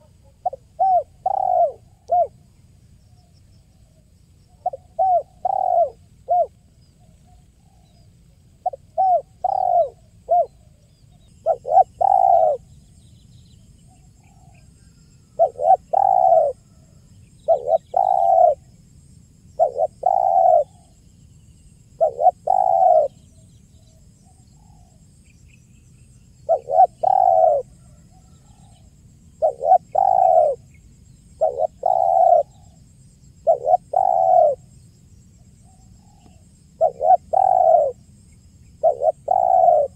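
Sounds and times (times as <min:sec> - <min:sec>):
dove cooing: 0:00.0 - 0:02.4, 0:04.5 - 0:06.6, 0:08.6 - 0:10.6, 0:11.4 - 0:12.7, 0:15.3 - 0:18.7, 0:19.6 - 0:20.9, 0:22.0 - 0:23.2, 0:26.4 - 0:28.8, 0:29.4 - 0:32.8, 0:33.4 - 0:34.7, 0:35.6 - 0:38.1, 0:38.8 - 0:39.9.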